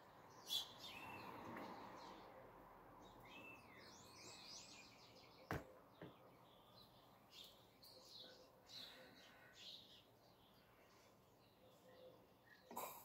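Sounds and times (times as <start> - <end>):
low steady background noise: 0.0 - 13.0
bird chirps: 0.3 - 1.4.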